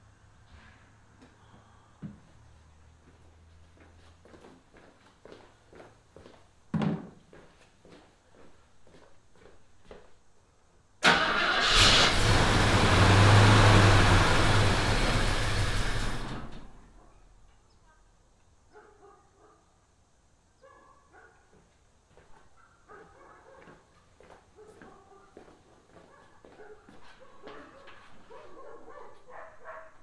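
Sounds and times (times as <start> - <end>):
car engine starting and dying: 11.0 - 16.9.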